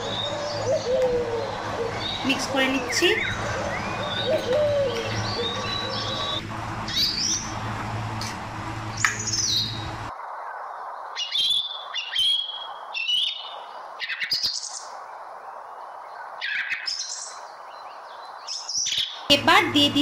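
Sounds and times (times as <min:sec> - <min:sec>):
small birds chirping: 0:00.0 - 0:07.7, 0:08.9 - 0:10.1, 0:10.8 - 0:20.0
steady low hum: 0:00.0 - 0:10.1, 0:19.3 - 0:20.0.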